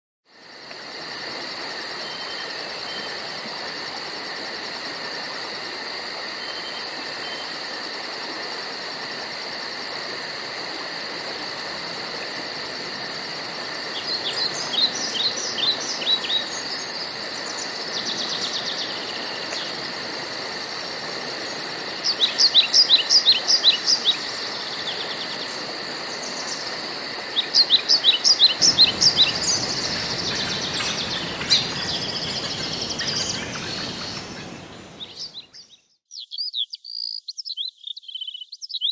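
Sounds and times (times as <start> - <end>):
high drone of insects: 0.3 - 35.7
fast pulsing insect trill: 9.4 - 35.4
songbird singing: 13.7 - 19.9, 21.4 - 38.9.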